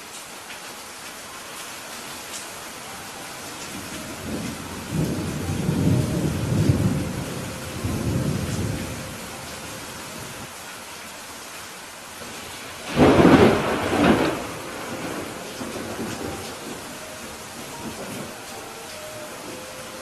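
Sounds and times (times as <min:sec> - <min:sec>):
steady rain: 0:00.0 - 0:20.0
thunder rumble: 0:03.4 - 0:10.5, 0:12.8 - 0:20.0.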